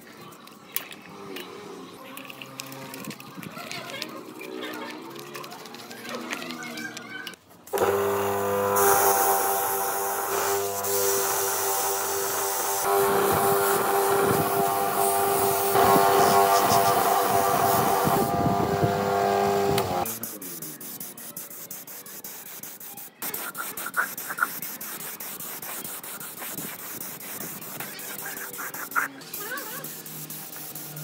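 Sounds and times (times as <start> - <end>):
wire wheel grinder whining: 7.7 - 20.1.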